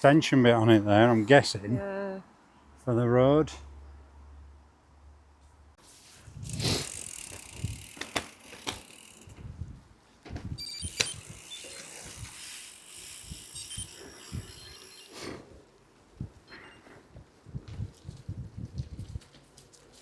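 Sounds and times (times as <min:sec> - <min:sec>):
bicycle tyre noise: 0:05.8 - 0:09.6, 0:10.5 - 0:15.6
bike rattling and knocking: 0:06.4 - 0:09.5.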